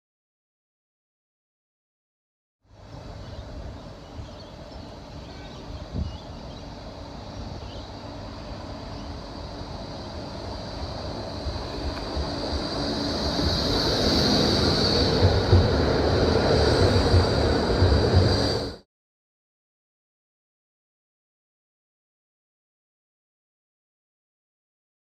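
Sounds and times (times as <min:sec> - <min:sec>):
high steady whine: 0:02.7 - 0:18.8
tram rumbling on rails: 0:02.7 - 0:18.8.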